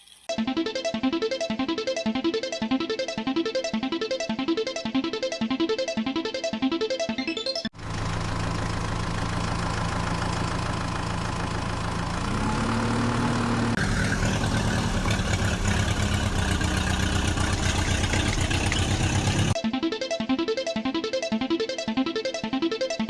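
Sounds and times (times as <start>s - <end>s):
heavy vehicle engine idling: 7.8s - 19.6s.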